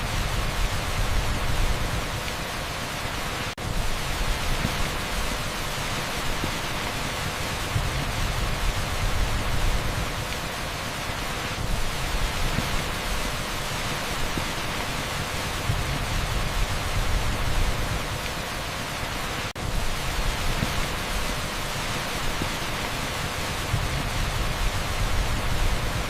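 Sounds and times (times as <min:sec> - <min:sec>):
heavy rain on a street: 0:00.0 - 0:26.0.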